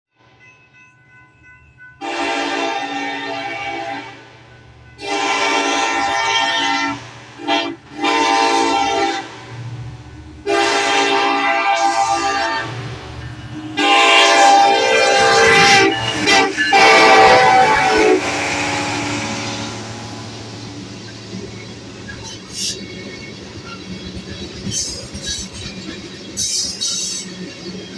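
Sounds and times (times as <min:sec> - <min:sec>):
train running noise: 0:00.2 - 0:27.9
locomotive air horn blasts: 0:02.0 - 0:04.2, 0:05.0 - 0:09.4, 0:10.4 - 0:13.0, 0:13.7 - 0:20.6
locomotive engine rumble: 0:03.3 - 0:27.9.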